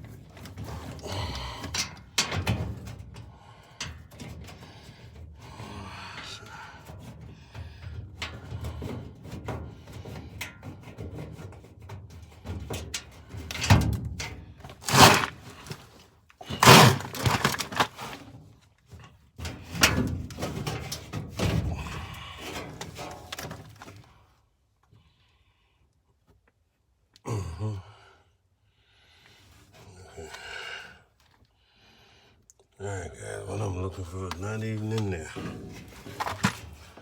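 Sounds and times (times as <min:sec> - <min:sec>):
metal parts thunking and rattling: 0:00.0 - 0:05.6, 0:06.9 - 0:24.1, 0:35.3 - 0:37.0.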